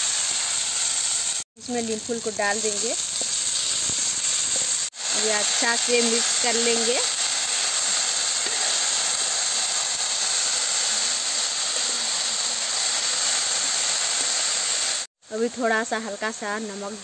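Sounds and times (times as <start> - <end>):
vegetables sizzling in oil: 0.0 - 17.0
spatula stirring in pan: 3.0 - 14.4.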